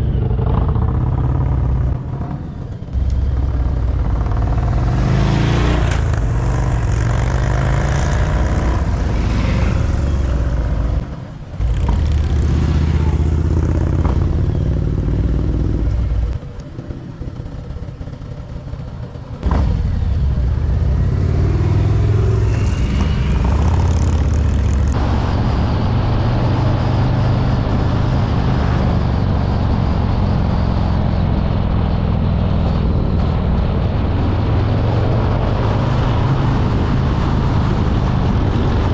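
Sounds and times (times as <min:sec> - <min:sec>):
motorcycle engine running: 0:00.0 - 0:26.3.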